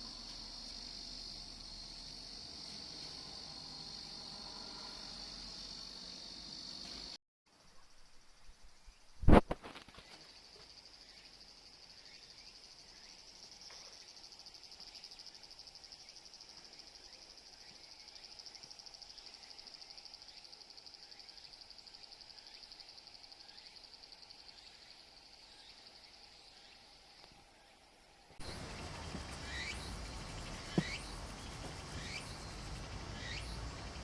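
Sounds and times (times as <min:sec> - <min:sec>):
high-pitched insect trilling: 0:28.4 - 0:34.0.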